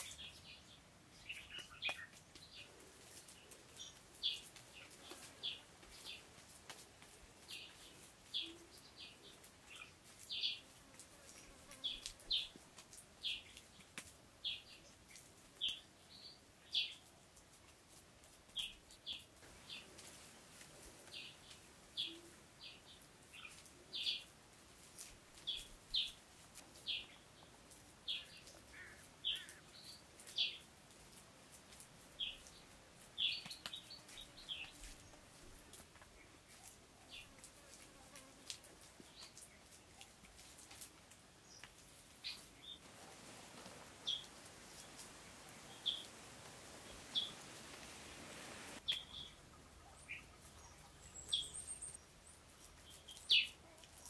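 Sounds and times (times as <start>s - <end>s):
bird chirping: 0.0s - 2.8s, 41.5s - 53.6s.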